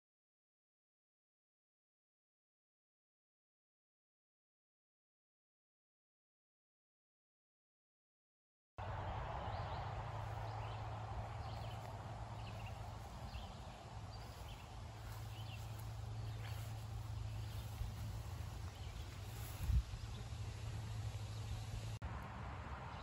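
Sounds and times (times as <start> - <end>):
birds chirping: 8.8 - 22.0
steady low hum: 8.8 - 22.8.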